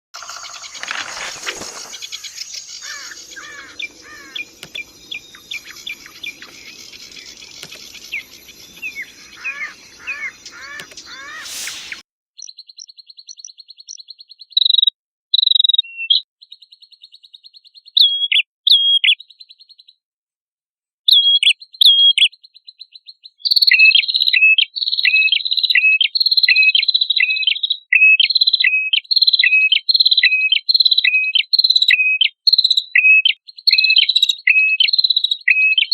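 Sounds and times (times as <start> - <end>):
songbird singing: 0.2 - 19.9.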